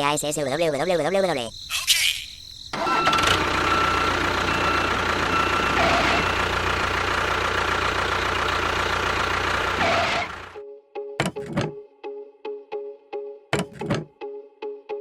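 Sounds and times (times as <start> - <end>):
engine running with low rumble: 2.8 - 10.6.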